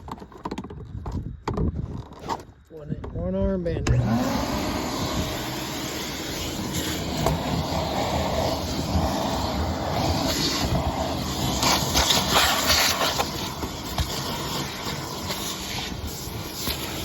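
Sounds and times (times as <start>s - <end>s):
vacuum cleaner running: 3.9s - 17.0s.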